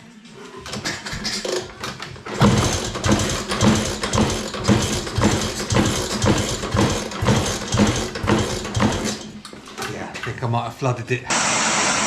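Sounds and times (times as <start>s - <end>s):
scooter engine kick-start attempts: 1.7s - 9.2s.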